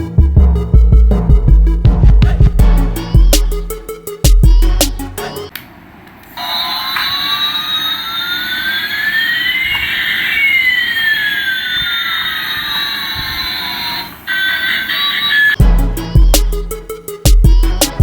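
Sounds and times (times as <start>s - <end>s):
toy jet engine sound effect: 6.4s - 15.6s.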